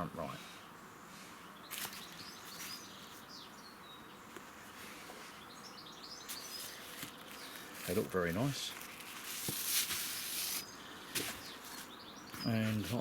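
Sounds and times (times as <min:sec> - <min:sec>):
faint birds chirping: 0:00.0 - 0:13.0
soft handling noises: 0:06.3 - 0:13.0.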